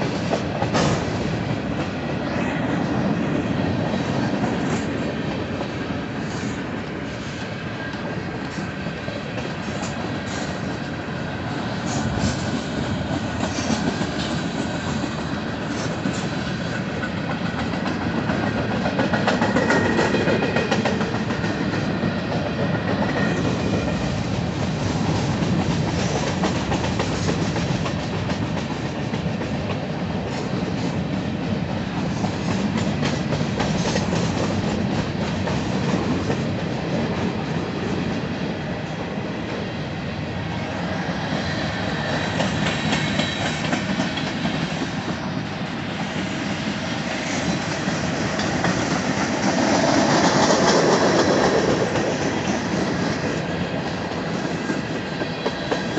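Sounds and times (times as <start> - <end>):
freight train cars rolling past: 0.0 - 55.9.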